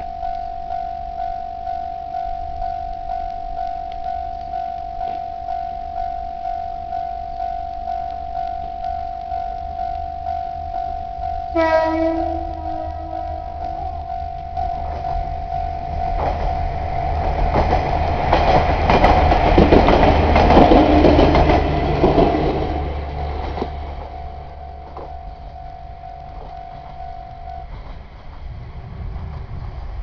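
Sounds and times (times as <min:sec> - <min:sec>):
crossing warning bell ringing: 0:00.0 - 0:28.6
diesel train passing: 0:00.0 - 0:30.0
wheels clacking over rail joints: 0:16.0 - 0:25.5.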